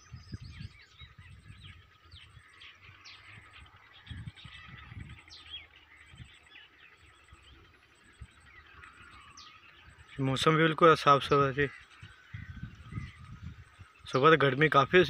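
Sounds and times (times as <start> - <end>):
birds chirping and whistling: 0.0 - 15.0.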